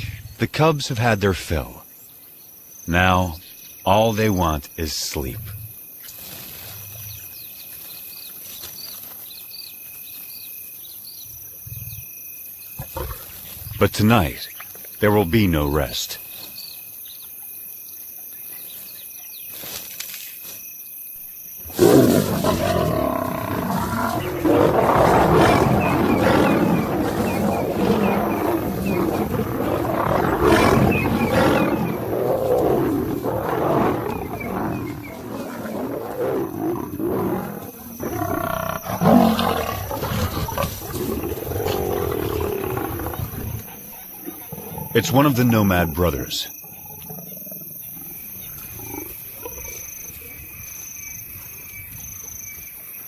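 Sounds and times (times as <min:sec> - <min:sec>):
crickets chirping: 0:00.0 - 0:53.0
lions snarling and roaring: 0:12.8 - 0:14.0, 0:21.6 - 0:50.4.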